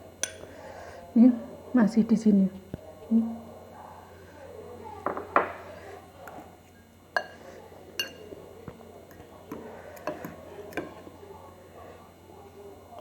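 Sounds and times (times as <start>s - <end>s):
spoon clinking against a bowl: 0.2s - 0.5s, 7.1s - 8.4s.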